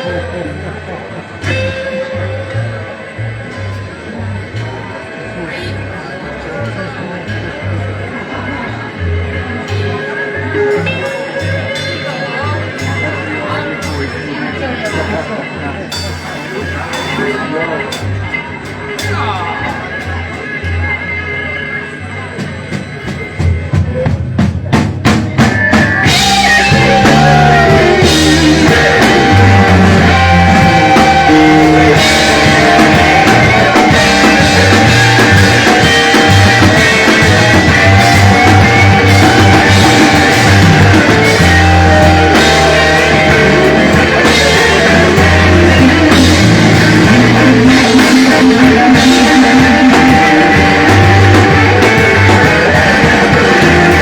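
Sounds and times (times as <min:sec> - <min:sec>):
blues-rock band playing: 0:00.0 - 0:05.6, 0:06.5 - 0:54.0
electric guitar bending notes: 0:00.0 - 0:15.9, 0:25.4 - 0:54.0
drum roll: 0:22.4 - 0:54.0.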